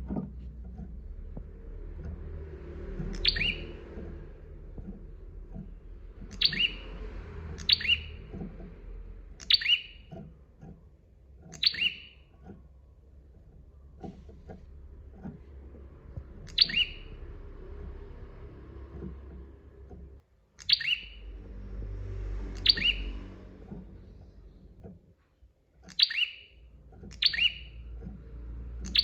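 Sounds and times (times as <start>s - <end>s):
bird sharp high calls: 3.1s - 3.8s, 6.3s - 6.9s, 7.6s - 8.2s, 9.4s - 10.0s, 11.5s - 12.2s, 16.5s - 17.2s, 20.6s - 21.3s, 22.6s - 23.2s, 25.9s - 27.8s.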